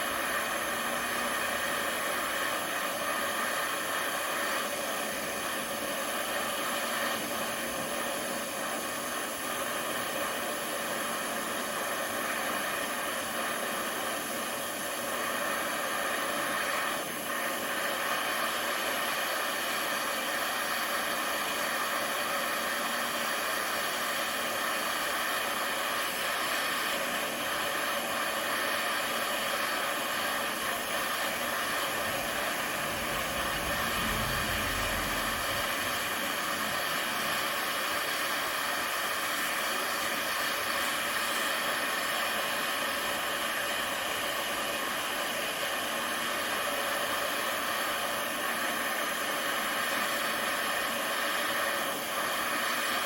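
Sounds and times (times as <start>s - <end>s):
gas torch flame hissing: 0.0s - 53.0s
brief low rumble: 32.0s - 36.8s.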